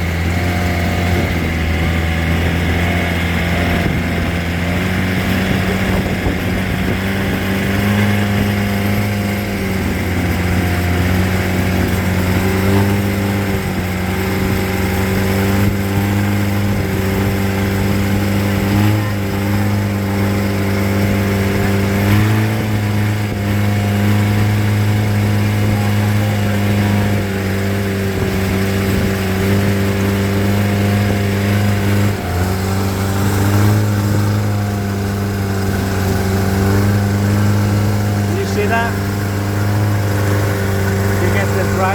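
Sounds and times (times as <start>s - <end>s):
boat engine running: 0.0s - 41.9s.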